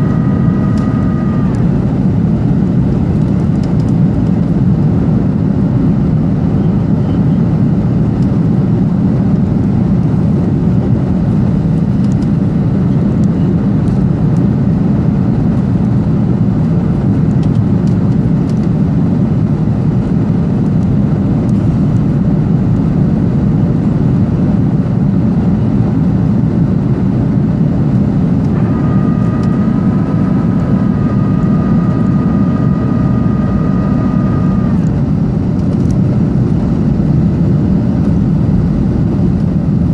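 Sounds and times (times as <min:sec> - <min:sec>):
jet engine and airflow rush: 0:00.0 - 0:39.9
multi-tone whine: 0:00.0 - 0:39.9.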